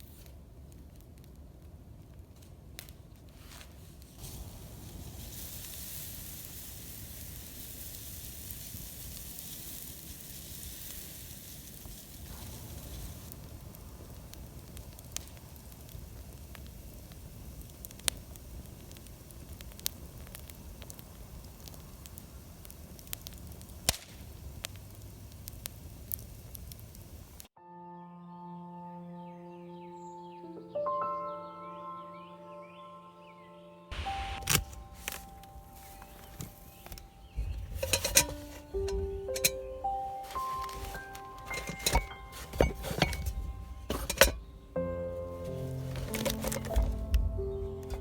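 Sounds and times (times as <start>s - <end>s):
firewood crackling: 0.0s - 27.6s, 33.9s - 48.0s
steady hiss: 1.9s - 27.6s, 33.9s - 48.0s
sharp pops: 11.7s - 27.5s, 33.9s - 48.0s.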